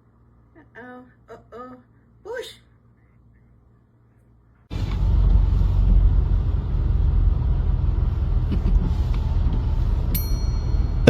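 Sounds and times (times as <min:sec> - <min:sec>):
steady low rumble: 0:04.7 - 0:11.0.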